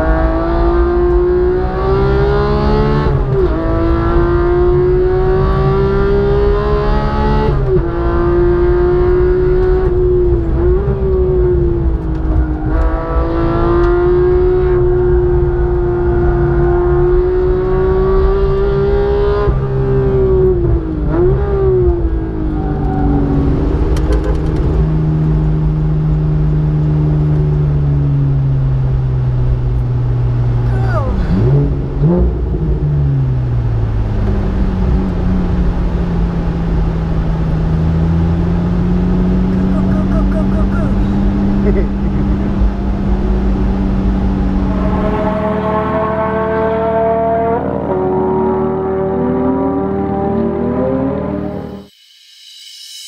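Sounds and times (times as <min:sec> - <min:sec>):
sports car engine revving hard: 0:00.0 - 0:51.8.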